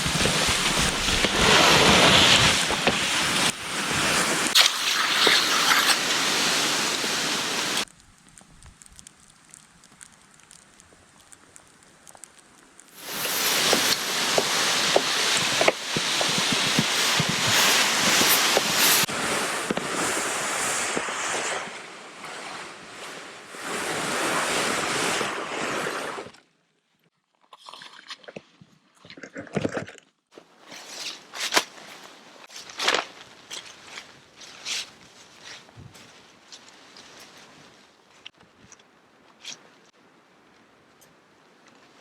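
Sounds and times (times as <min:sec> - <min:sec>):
crunches and rustles in snow: 0:00.0 - 0:07.9, 0:12.9 - 0:26.3, 0:30.4 - 0:38.6
small scattered ticks: 0:07.9 - 0:14.0.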